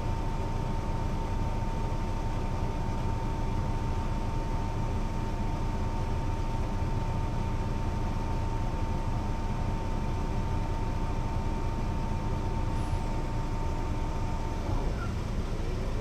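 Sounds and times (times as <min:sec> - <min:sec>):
bus diesel engine rumbling: 0:00.0 - 0:16.0
constant high whine: 0:07.2 - 0:16.0.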